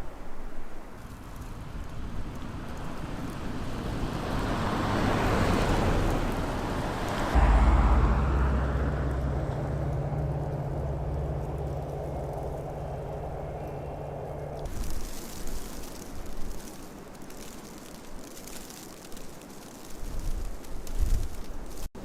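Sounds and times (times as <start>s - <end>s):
car tyres on snowy road: 0.0s - 22.0s
low rumble: 1.6s - 14.8s.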